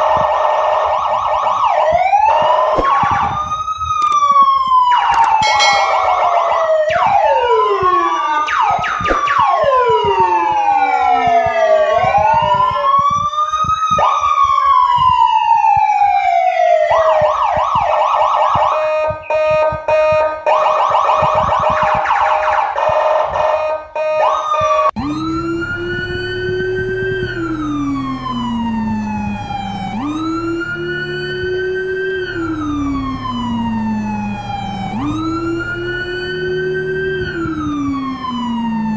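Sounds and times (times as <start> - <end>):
emergency vehicle sirens wailing: 0.0 - 38.9
siren with rapid warble: 0.0 - 38.9
low engine-like hum: 25.0 - 38.9.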